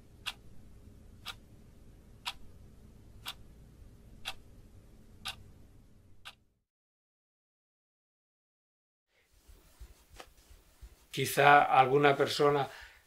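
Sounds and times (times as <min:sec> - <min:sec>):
faint low hum: 0:00.0 - 0:06.6
wall clock ticking: 0:00.1 - 0:00.5, 0:01.2 - 0:01.5, 0:02.2 - 0:02.6, 0:03.2 - 0:03.5, 0:04.2 - 0:04.5, 0:05.2 - 0:05.4, 0:06.2 - 0:06.5.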